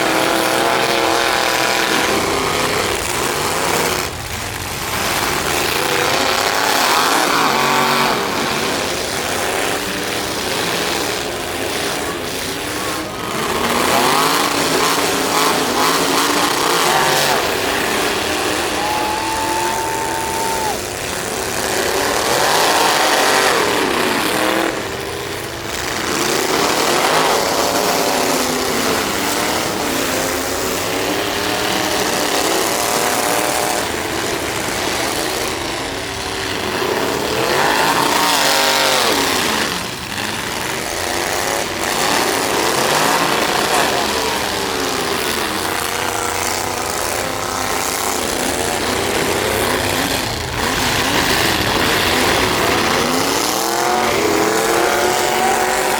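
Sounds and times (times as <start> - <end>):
truck engines revving: 0.0 - 55.9.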